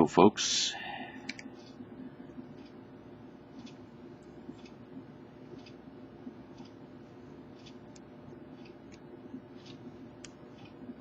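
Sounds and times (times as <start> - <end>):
steady low hum: 0.0 - 11.0
faint clock ticking: 1.2 - 11.0.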